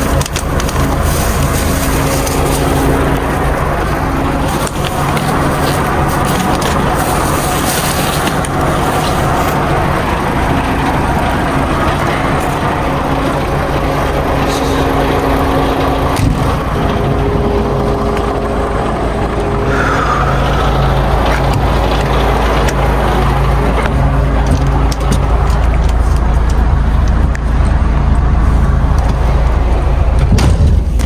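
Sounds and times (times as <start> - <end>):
low hum: 0.0 - 31.0
road noise: 0.0 - 31.0
truck diesel engine running: 0.0 - 31.0.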